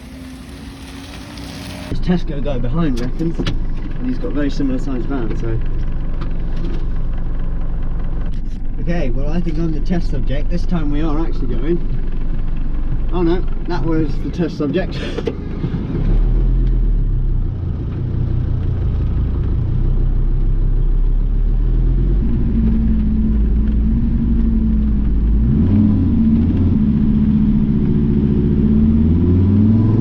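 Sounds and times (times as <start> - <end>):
diesel engine revving under load: 21.4 - 30.0.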